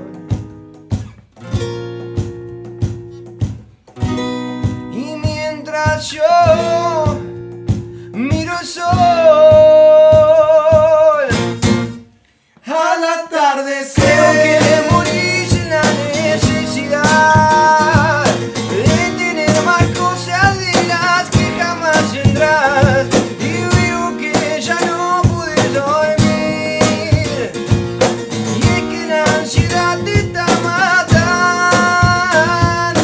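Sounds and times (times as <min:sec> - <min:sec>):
band with guitar and drums: 0:00.0 - 0:12.6, 0:14.0 - 0:33.0.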